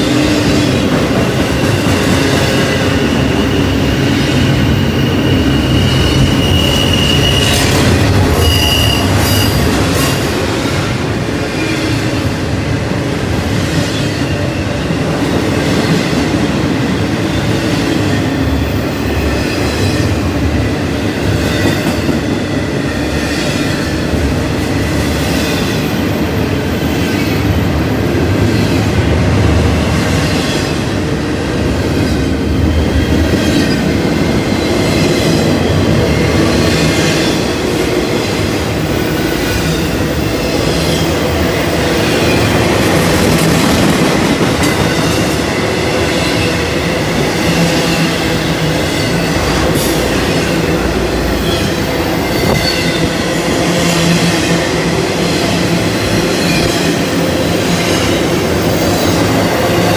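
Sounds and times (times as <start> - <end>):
faint high wheel squeal: 3.4 - 7.7.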